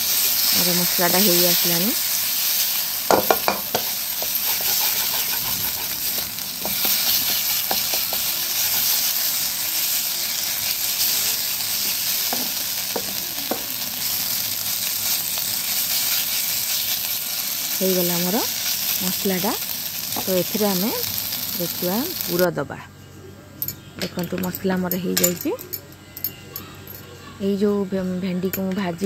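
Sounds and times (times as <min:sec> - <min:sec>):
food sizzling in oil: 0:00.0 - 0:22.5
spatula knocking against pan: 0:03.1 - 0:08.3
wooden spatula scraping pan: 0:03.6 - 0:09.0.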